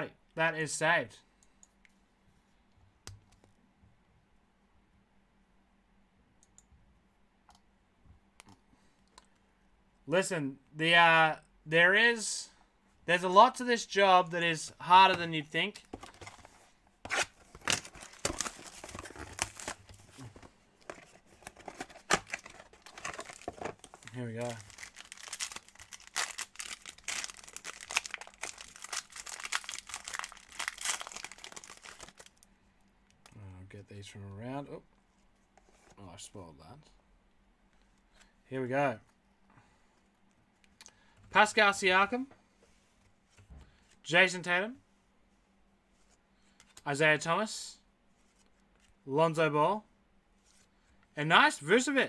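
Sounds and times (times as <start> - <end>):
plastic wrapping crinkling and tearing: 17.1 - 32.4.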